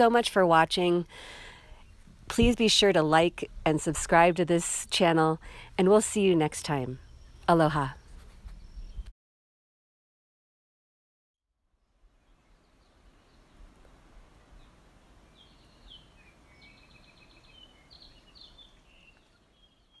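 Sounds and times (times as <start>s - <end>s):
small birds chirping: 3.4s - 9.1s, 14.3s - 20.0s.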